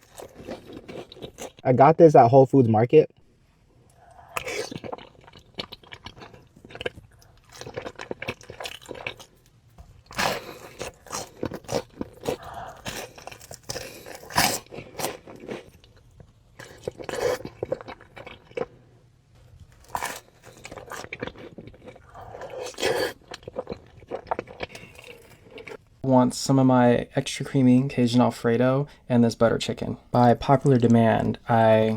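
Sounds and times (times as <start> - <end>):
crunchy chewing: 0.0 - 1.6, 4.0 - 18.9, 19.6 - 25.8.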